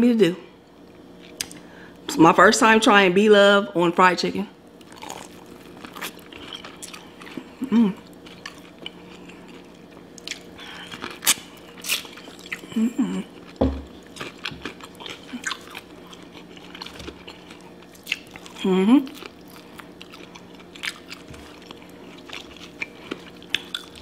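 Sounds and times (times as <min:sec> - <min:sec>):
crunching fried chicken: 0:04.7 - 0:24.0
person humming: 0:12.7 - 0:13.3, 0:18.6 - 0:19.1.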